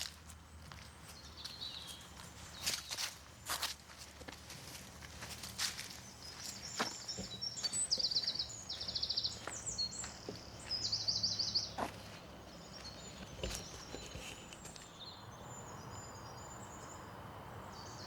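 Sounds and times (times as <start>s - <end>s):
footsteps on a path: 0.0s - 14.9s
songbird trilling: 6.2s - 11.8s.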